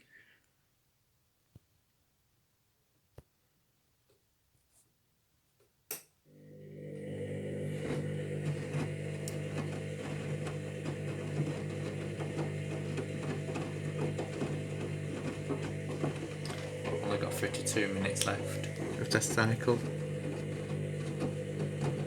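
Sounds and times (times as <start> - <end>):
washing machine motor humming: 6.3 - 22.0.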